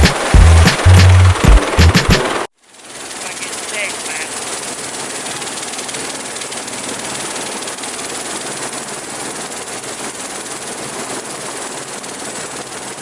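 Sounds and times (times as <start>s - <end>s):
helicopter engine and rotor: 0.0s - 13.0s.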